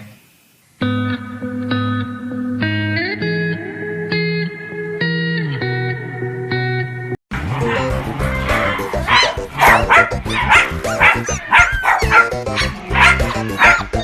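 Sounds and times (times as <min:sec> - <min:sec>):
background music: 0:07.4 - 0:14.0
dog barking and yipping: 0:07.5 - 0:14.0.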